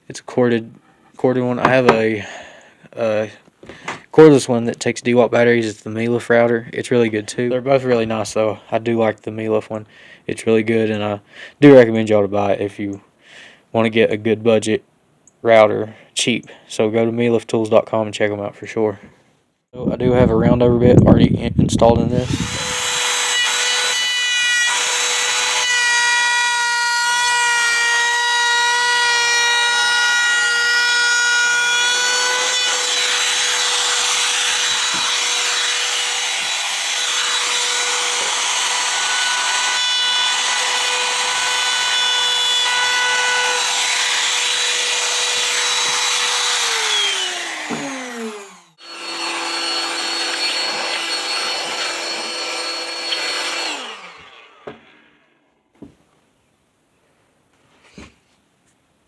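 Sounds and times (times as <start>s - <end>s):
router whining: 1.6s - 2.1s, 22.0s - 55.2s
router spinning down: 22.1s - 24.0s, 32.6s - 55.0s.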